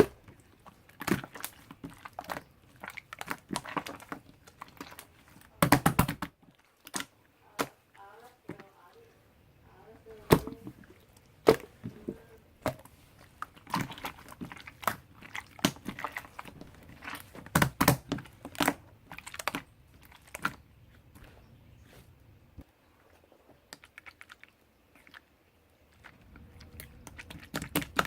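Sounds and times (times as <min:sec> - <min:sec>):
slime squished by hand: 0:00.0 - 0:07.8, 0:10.2 - 0:22.1, 0:25.9 - 0:28.0.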